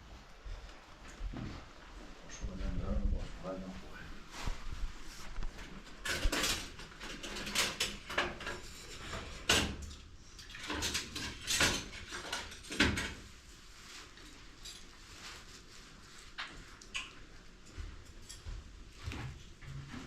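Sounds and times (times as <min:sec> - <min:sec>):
knocks clatter and scraping: 0:05.9 - 0:09.9.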